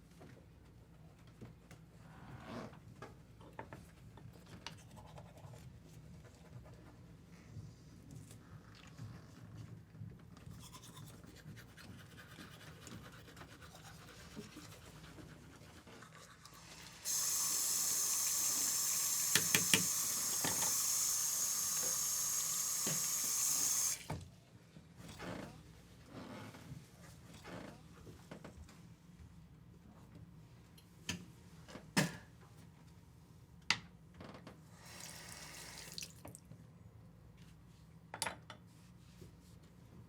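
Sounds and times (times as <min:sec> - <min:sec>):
water running from a tap: 0:16.4 - 0:24.1, 0:34.8 - 0:36.4.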